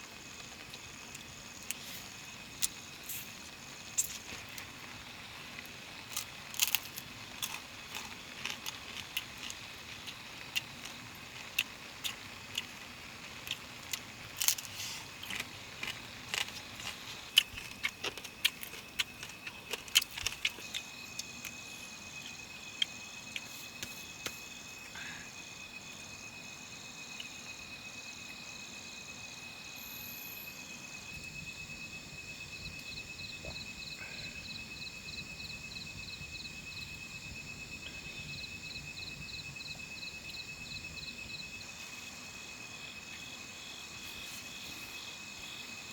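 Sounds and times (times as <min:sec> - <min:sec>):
high insect trill: 0:00.0 - 0:45.9
pulsing insect chirp: 0:00.0 - 0:45.9.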